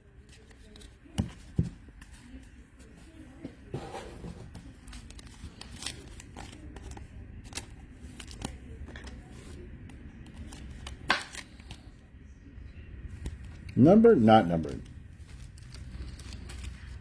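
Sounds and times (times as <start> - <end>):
cards sliding and scraping: 14.8 - 17.0.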